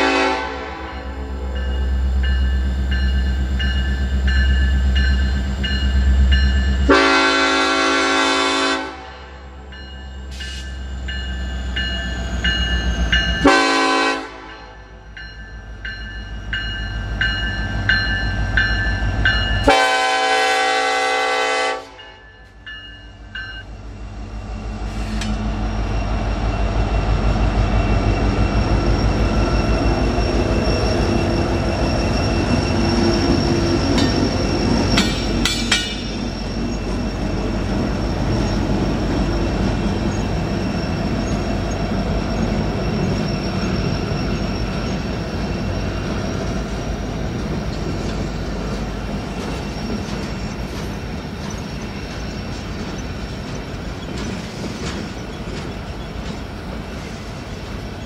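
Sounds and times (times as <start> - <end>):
locomotive air horn: 0.0 - 1.6, 6.9 - 9.5, 13.4 - 14.8, 19.6 - 22.2
steel wheels rolling on rails: 22.4 - 58.0
locomotives rumbling past: 23.2 - 58.0.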